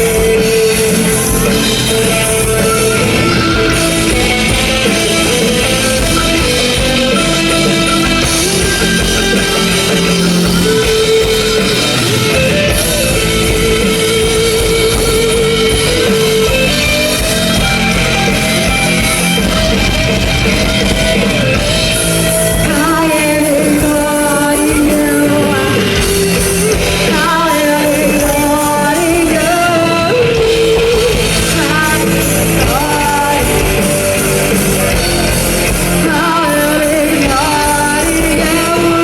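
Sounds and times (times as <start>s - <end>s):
bass guitar: 0.0s - 39.0s
distorted electric guitars: 0.0s - 39.0s
drum kit: 0.0s - 39.0s.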